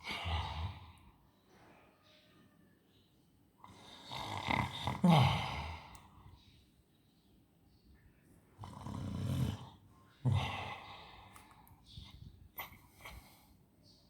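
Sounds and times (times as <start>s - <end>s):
dog snoring: 3.6s - 5.5s, 8.6s - 10.8s.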